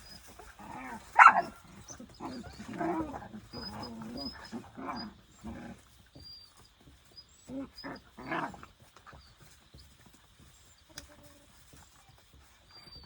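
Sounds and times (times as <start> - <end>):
puppies whining and yipping: 0.0 - 8.4, 12.7 - 13.0.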